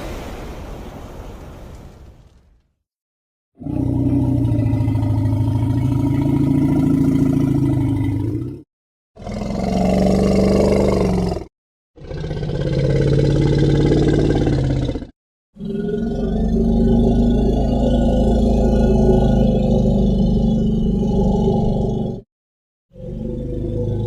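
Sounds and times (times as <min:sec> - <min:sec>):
long low roars: 0:03.6 - 0:08.6, 0:09.2 - 0:22.2, 0:23.0 - 0:24.0.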